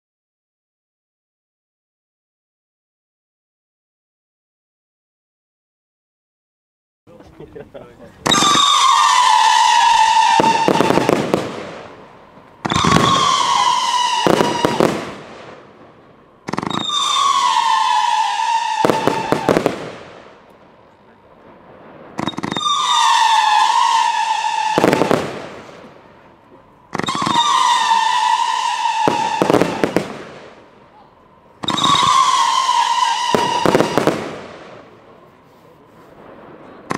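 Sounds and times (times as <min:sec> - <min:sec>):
firework bangs and crackles: 0:07.4 - 0:36.9
firework shrill whistle: 0:08.2 - 0:15.5, 0:16.5 - 0:20.2, 0:22.2 - 0:26.0, 0:26.9 - 0:30.7, 0:31.6 - 0:36.1.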